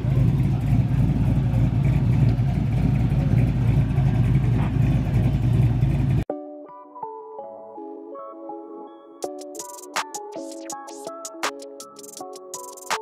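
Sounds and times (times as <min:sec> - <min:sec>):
car engine running: 0:00.0 - 0:06.2
soft electronic music: 0:06.2 - 0:13.0.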